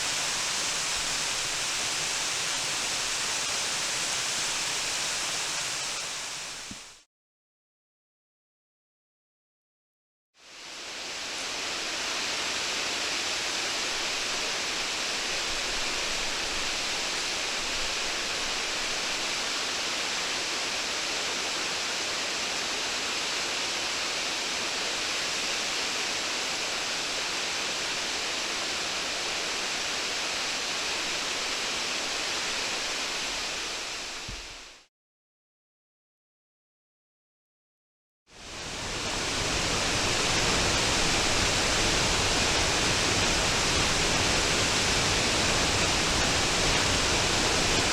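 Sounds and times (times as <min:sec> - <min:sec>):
waterfall roaring: 0:38.5 - 0:47.9.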